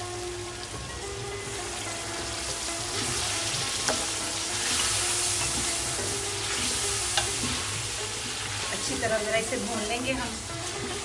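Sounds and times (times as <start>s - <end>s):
chicken sizzling in a pan: 0.0s - 11.0s
spatula stirring chicken: 0.7s - 11.0s.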